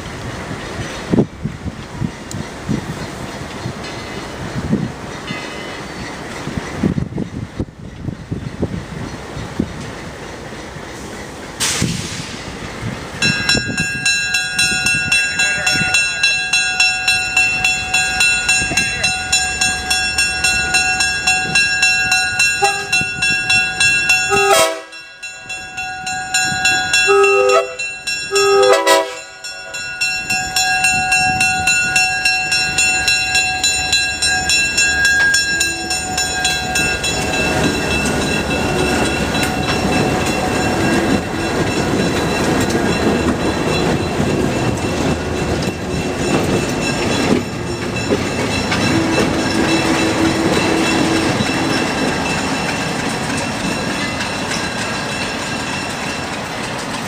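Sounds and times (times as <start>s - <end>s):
train rhythmic clatter: 0.0s - 57.0s
train horn blasts: 22.5s - 23.1s, 24.3s - 25.0s, 26.9s - 29.5s, 48.8s - 52.0s.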